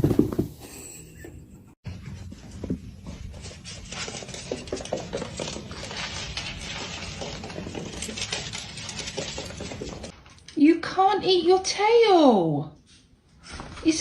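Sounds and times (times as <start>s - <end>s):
pet claws clattering: 3.8s - 10.1s.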